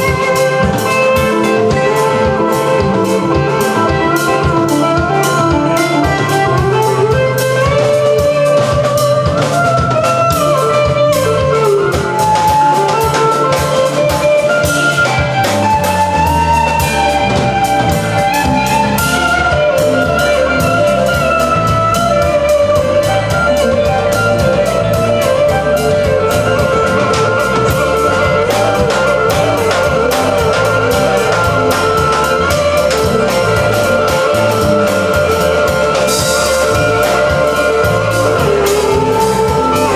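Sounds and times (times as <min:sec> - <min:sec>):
country band playing: 0:00.0 - 0:39.9
walking bass line: 0:00.0 - 0:39.9.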